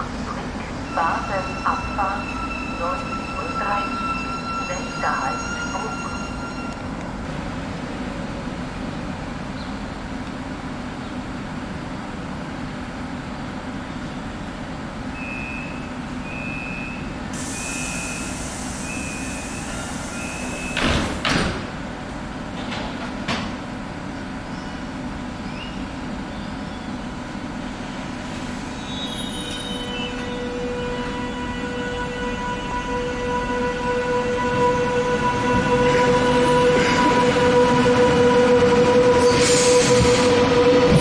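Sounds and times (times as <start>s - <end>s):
train hum: 0.0s - 41.0s
door warning beeps: 15.2s - 21.0s
hiss: 17.3s - 21.3s
sliding doors shutting: 17.4s - 21.7s.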